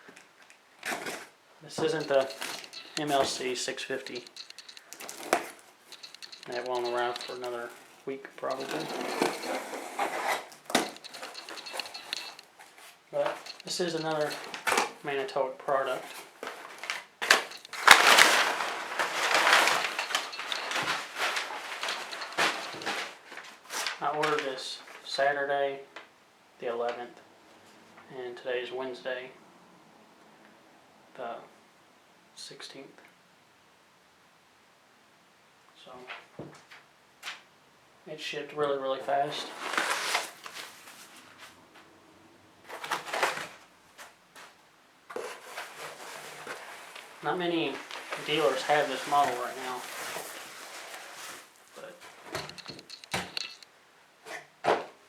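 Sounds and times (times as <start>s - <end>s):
packaging rustling and scraping: 0.0s - 25.1s, 39.1s - 41.9s, 42.6s - 54.5s
crackling handling noise: 0.0s - 25.2s, 39.0s - 42.0s, 42.6s - 55.0s
sharp clicks: 1.9s - 7.6s, 13.3s - 14.7s.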